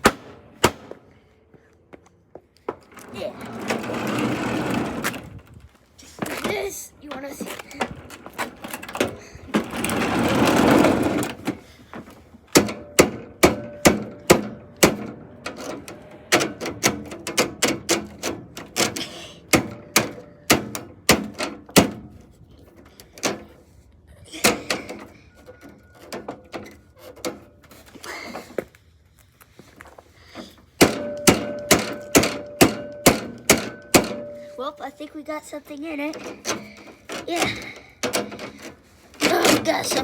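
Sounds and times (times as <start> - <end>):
hand tool striking metal casing: 12.5 - 22.0, 30.8 - 34.6.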